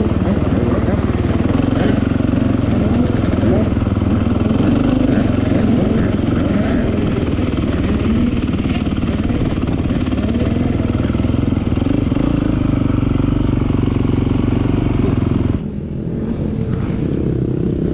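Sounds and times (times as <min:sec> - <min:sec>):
motorcycle engine running: 0:00.0 - 0:17.9.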